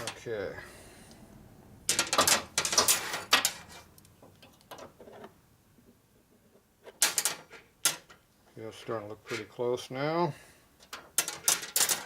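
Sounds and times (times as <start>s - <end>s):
rattles and scrapes of handled part: 1.9s - 5.4s, 9.0s - 9.6s, 10.8s - 12.0s.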